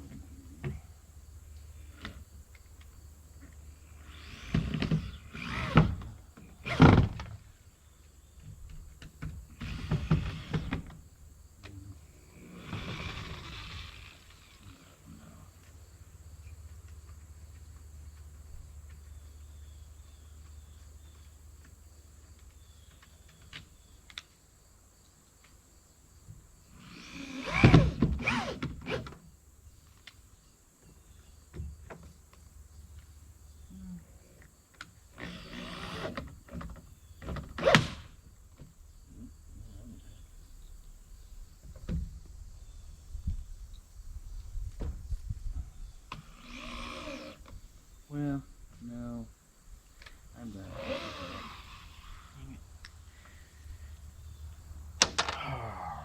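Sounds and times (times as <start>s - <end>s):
bursts of wood and metal noise: 3.9s - 7.5s, 35.1s - 38.2s.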